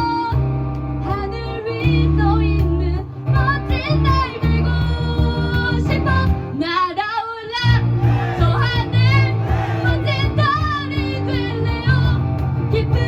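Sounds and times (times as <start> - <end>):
acoustic and electric guitars: 0.0 - 6.7, 7.6 - 13.0
bass guitar: 0.0 - 6.8, 7.6 - 13.0
woman singing: 1.0 - 7.8, 8.4 - 13.0.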